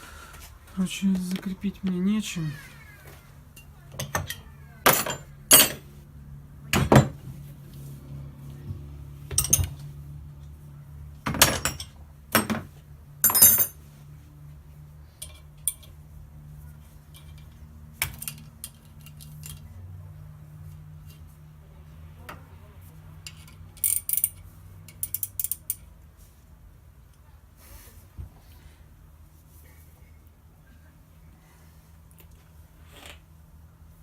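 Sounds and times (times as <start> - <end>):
metal tools clinking on workbench: 3.5 - 5.9, 9.3 - 9.9, 11.3 - 13.8, 15.2 - 16.0, 23.2 - 25.8.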